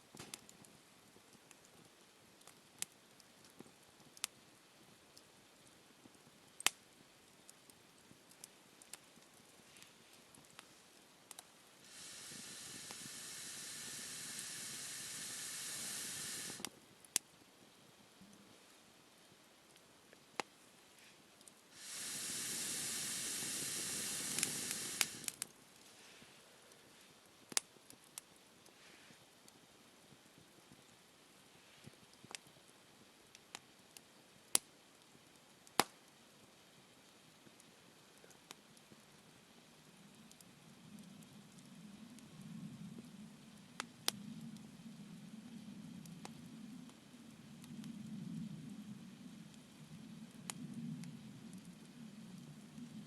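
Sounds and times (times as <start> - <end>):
campfire crackling: 0.0 - 53.0
steam hissing from burning log: 11.3 - 16.7, 21.6 - 27.1.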